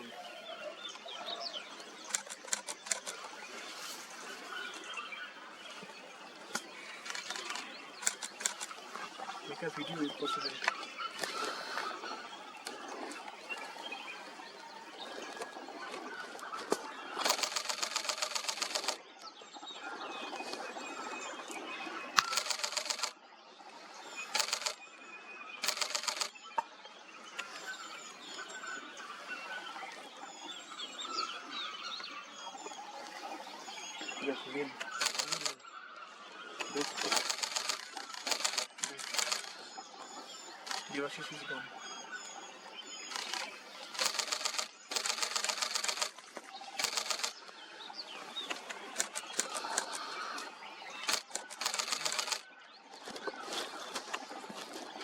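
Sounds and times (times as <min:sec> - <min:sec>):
small birds chirping: 0:00.0 - 0:19.6, 0:20.3 - 0:23.2, 0:23.9 - 0:54.8
camera shutter clicks: 0:02.1 - 0:03.2, 0:07.0 - 0:08.8, 0:17.2 - 0:19.0, 0:22.2 - 0:23.1, 0:24.4 - 0:24.8, 0:25.6 - 0:26.3, 0:35.0 - 0:35.6, 0:36.8 - 0:39.6, 0:43.1 - 0:46.2, 0:46.8 - 0:47.4, 0:49.0 - 0:50.0, 0:51.1 - 0:52.4.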